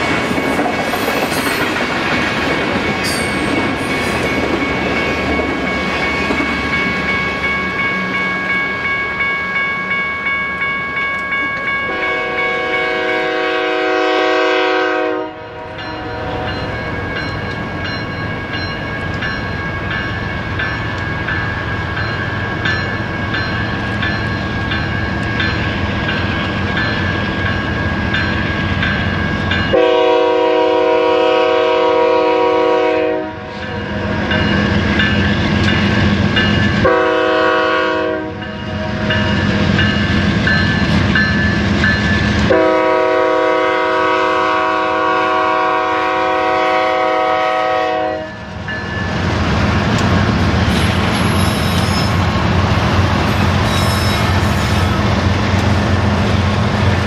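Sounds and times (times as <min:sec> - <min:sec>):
freight train wheels clicking: 0:00.0 - 0:09.2, 0:33.8 - 0:37.0, 0:48.4 - 0:57.0
diesel locomotive engines rumbling: 0:00.0 - 0:57.0
multi-note locomotive horn: 0:11.8 - 0:16.7, 0:29.7 - 0:33.5, 0:36.8 - 0:39.0, 0:42.4 - 0:48.5.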